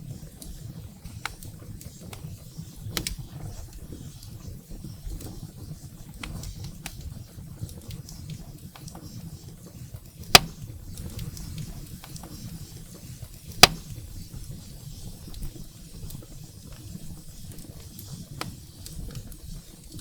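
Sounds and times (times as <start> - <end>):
fire crackles: 0.0 - 20.0
low rumble of flames: 0.0 - 20.0
loud sharp fire pops: 10.2 - 14.6.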